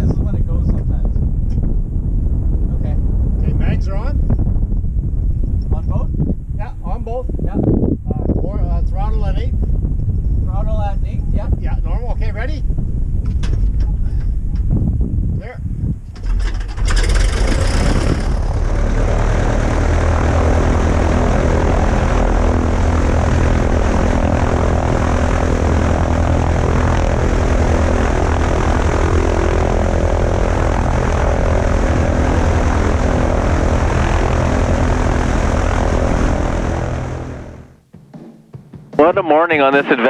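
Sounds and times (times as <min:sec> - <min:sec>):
airplane piston engine running: 0:16.2 - 0:37.8.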